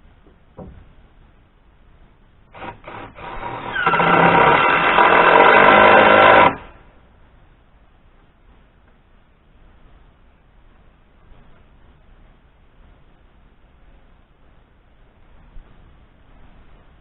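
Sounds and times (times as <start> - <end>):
cordless drill driving screw: 2.6 - 6.7.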